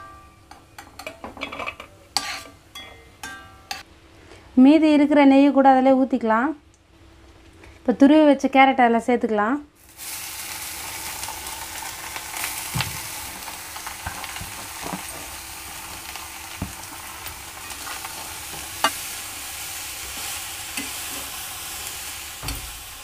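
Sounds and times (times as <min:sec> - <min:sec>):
spatula scraping and tapping pan: 0:00.5 - 0:03.8
carrot sizzling in hot fat: 0:09.8 - 0:23.0.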